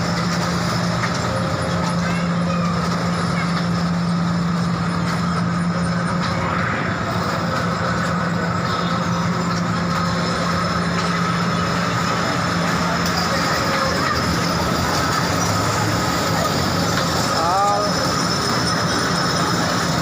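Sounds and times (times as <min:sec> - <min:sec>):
train running noise: 0:00.0 - 0:20.0.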